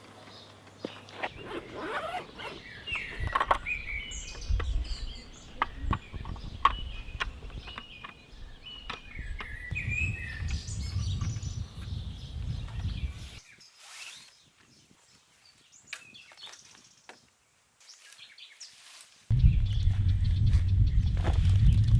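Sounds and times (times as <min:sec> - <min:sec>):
birds chirping: 0:00.2 - 0:21.9
low rumble: 0:19.3 - 0:21.9.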